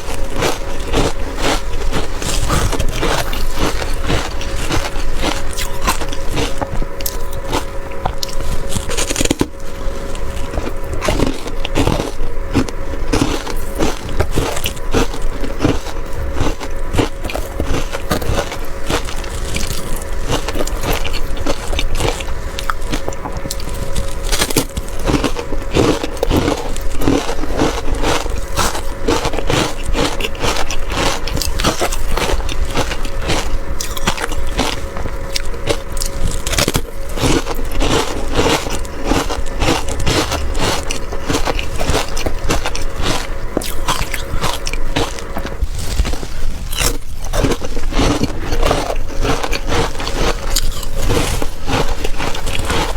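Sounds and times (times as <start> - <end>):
faint steady hum: 0.0 - 52.9
ice being crunched: 0.0 - 52.9.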